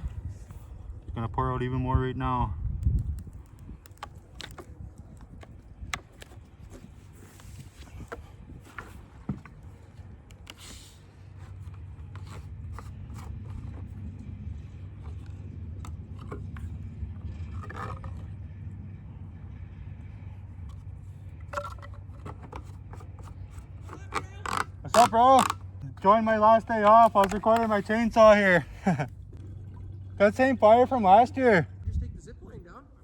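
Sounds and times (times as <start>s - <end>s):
engine rumble: 0.0s - 33.0s
handling scrapes and clicks: 2.8s - 18.4s, 20.6s - 25.8s, 26.7s - 28.1s.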